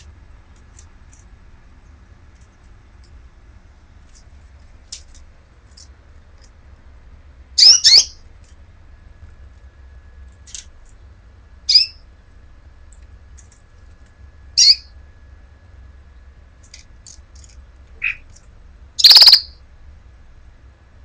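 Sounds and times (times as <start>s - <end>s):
bird calling loudly: 7.6s - 8.2s, 18.0s - 18.3s, 19.0s - 19.6s
faint short bird chirps: 19.0s - 19.6s.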